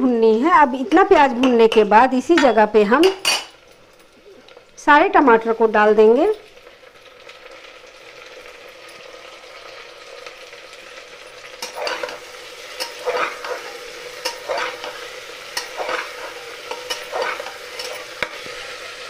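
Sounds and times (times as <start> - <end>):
vegetables sizzling in oil: 0.0 - 19.0
metal spoon scraping pot: 11.6 - 18.3.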